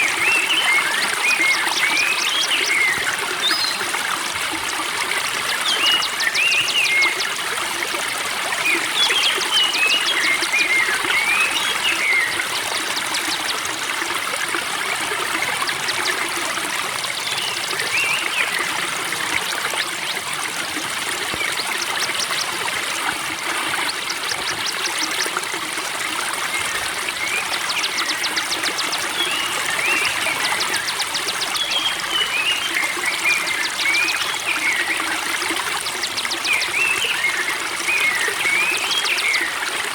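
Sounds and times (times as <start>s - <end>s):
water trickling and babbling: 0.0s - 39.9s
songbird singing: 14.7s - 25.4s, 26.5s - 39.5s.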